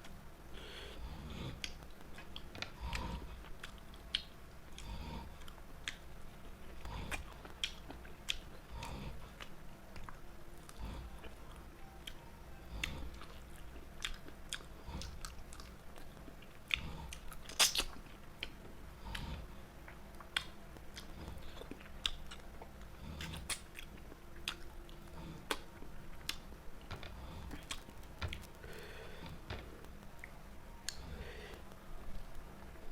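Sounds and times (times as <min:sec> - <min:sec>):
person chewing food: 0:00.0 - 0:32.9
wet mouth clicks: 0:17.1 - 0:19.3.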